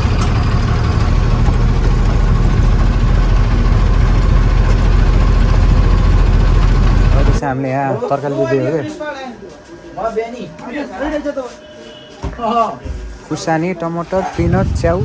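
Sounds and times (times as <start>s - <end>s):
diesel truck engine running: 0.0s - 7.4s, 14.3s - 15.0s.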